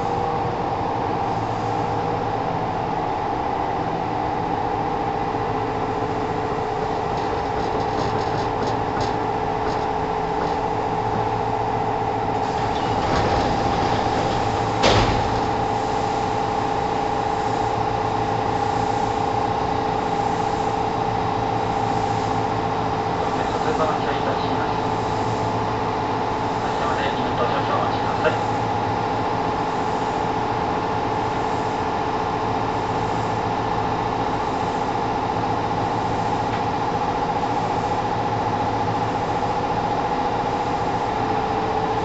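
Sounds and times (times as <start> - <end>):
electric train hum: 0.0 - 42.0
train doors clacking open: 6.8 - 16.7.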